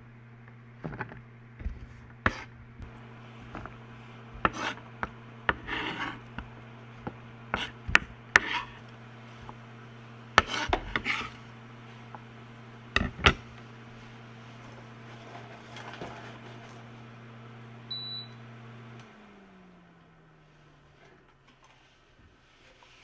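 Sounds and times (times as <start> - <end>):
knife scraping on board: 2.3 - 2.5, 4.4 - 4.9, 5.5 - 6.4, 7.5 - 8.8, 10.4 - 11.4.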